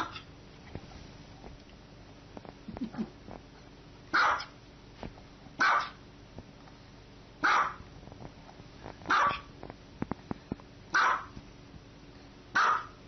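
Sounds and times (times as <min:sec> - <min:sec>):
small dog barking: 0:00.0 - 0:00.3, 0:04.1 - 0:04.6, 0:05.6 - 0:06.0, 0:07.4 - 0:07.8, 0:09.1 - 0:09.5, 0:10.9 - 0:11.4, 0:12.5 - 0:13.0.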